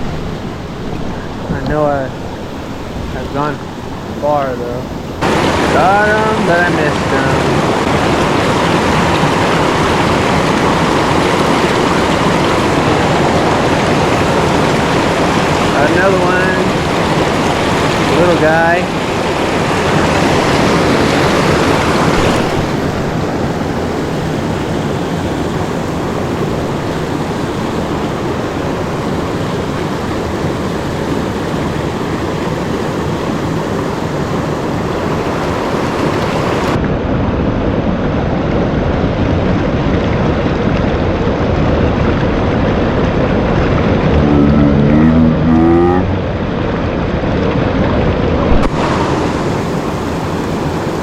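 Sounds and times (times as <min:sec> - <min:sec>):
water rushing over rocks: 0:00.0 - 0:36.8, 0:48.3 - 0:51.0.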